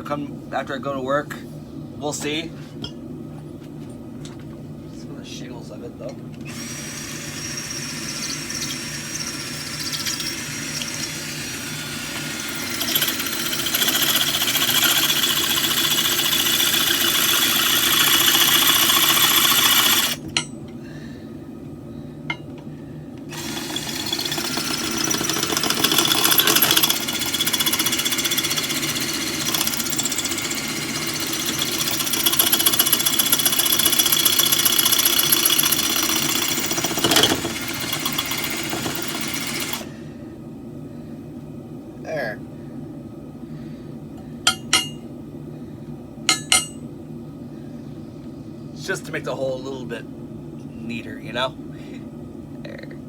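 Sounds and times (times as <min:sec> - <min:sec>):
power tool cutting steel: 0:06.5 - 0:20.2, 0:23.3 - 0:39.9.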